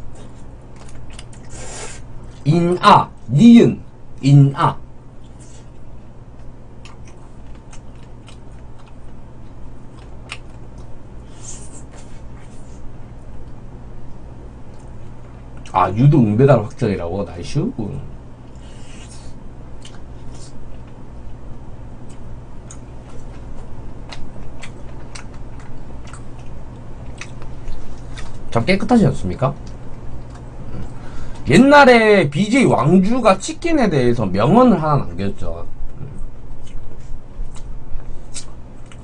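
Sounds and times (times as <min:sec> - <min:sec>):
person chewing meat off bone: 0:00.0 - 0:01.5, 0:06.3 - 0:11.0, 0:18.6 - 0:21.0, 0:22.0 - 0:28.5, 0:29.6 - 0:31.0, 0:36.1 - 0:39.0
steady low hum: 0:00.0 - 0:39.0.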